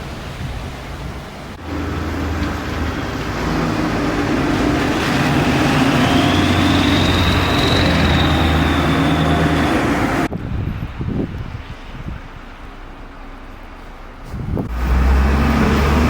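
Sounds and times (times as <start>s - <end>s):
vehicle low hum: 1.1s - 16.0s
high whine rising in pitch: 5.4s - 10.3s.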